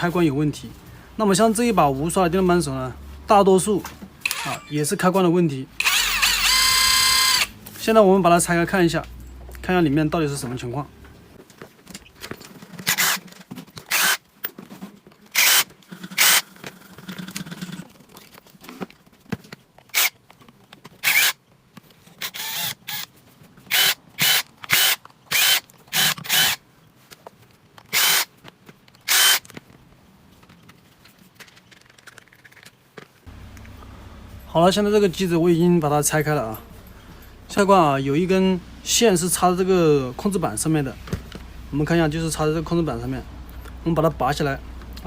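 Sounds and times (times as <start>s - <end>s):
electric screwdriver whirring: 5.8s - 7.5s, 12.8s - 13.2s, 13.9s - 14.2s, 15.3s - 16.4s, 19.9s - 20.2s, 21.0s - 21.4s, 22.2s - 23.1s, 23.7s - 26.6s, 27.9s - 28.3s, 29.0s - 29.5s.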